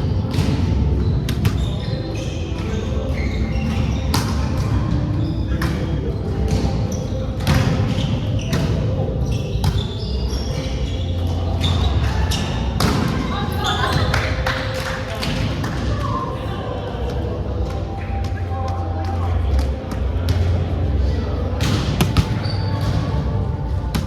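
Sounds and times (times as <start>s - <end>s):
voices echoing in hall: 4.8s - 24.0s.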